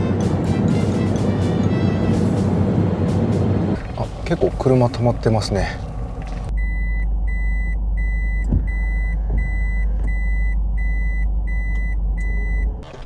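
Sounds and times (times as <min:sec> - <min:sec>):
engine idling: 0:03.8 - 0:13.0
reversing warning beeper: 0:03.8 - 0:13.0.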